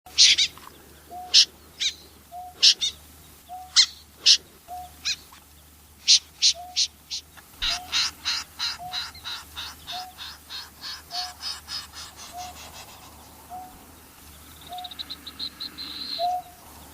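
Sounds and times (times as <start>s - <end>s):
snipe harsh high calls: 0.1s - 5.3s, 6.0s - 16.7s.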